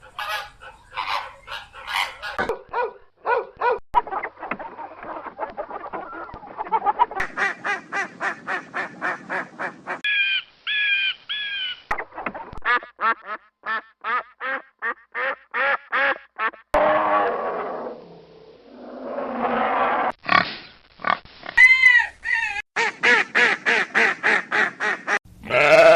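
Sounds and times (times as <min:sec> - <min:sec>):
animal sound: 0:00.0 - 0:02.5
long clear bird calls: 0:10.0 - 0:11.9.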